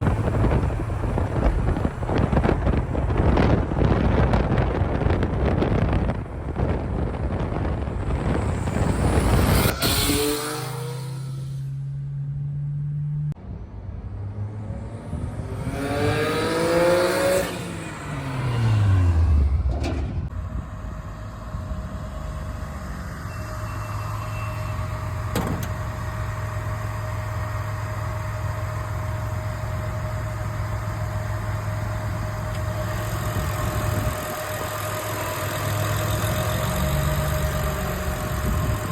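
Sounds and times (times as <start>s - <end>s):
car engine revving and idling: 0.0s - 38.9s.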